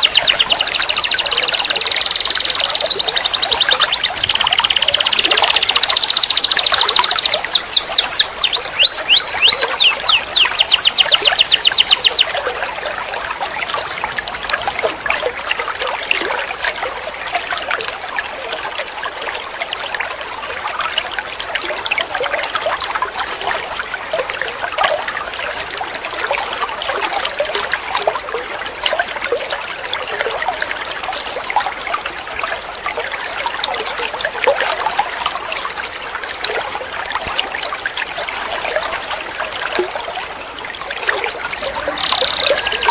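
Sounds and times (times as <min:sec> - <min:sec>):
canary singing trills: 0:00.0 - 0:12.3, 0:41.5 - 0:42.9
faint bird chirps: 0:00.0 - 0:12.3, 0:41.6 - 0:42.9
trickling water: 0:00.0 - 0:42.9.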